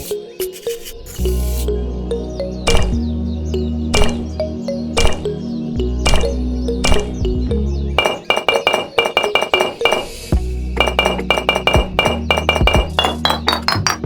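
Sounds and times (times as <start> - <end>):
bright clinking notes: 10.8 - 14.0.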